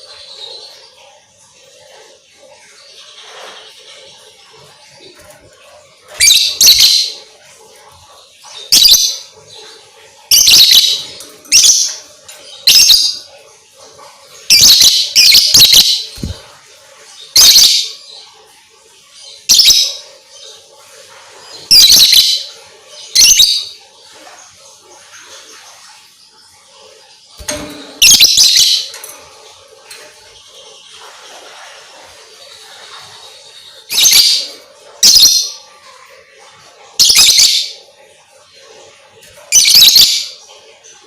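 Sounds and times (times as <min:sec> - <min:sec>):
lovebird shrill chirping: 0:06.2 - 0:07.1, 0:14.5 - 0:16.4, 0:21.7 - 0:22.3, 0:28.0 - 0:28.9, 0:39.6 - 0:40.2.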